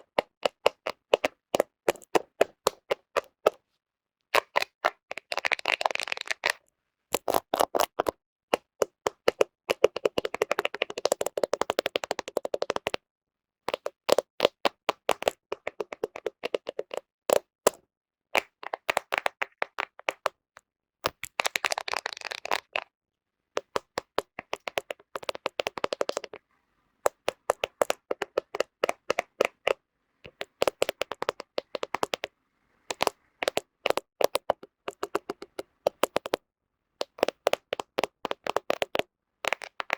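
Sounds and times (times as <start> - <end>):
fingernails tapping on camera: 23.6 - 26.4, 27.1 - 32.3, 32.9 - 36.4, 37.0 - 39.9.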